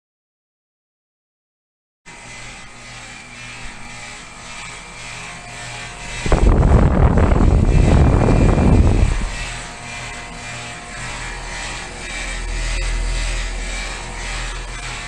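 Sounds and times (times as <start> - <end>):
heat pump compressor and fan hum: 2.1 - 15.0
loud rough rumble: 6.2 - 9.5.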